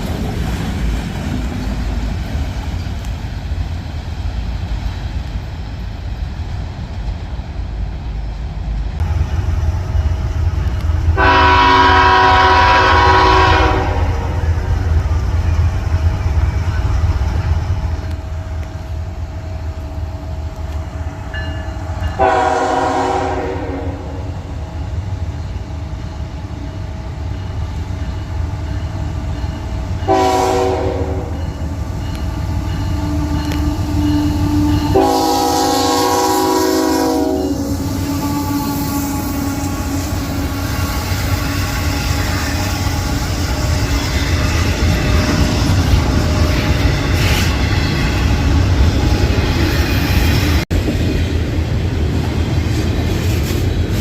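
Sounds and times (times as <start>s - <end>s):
train rumble: 0.0s - 54.0s
locomotive air horn blasts: 11.2s - 14.7s, 22.2s - 24.3s, 30.1s - 31.5s, 32.9s - 46.6s.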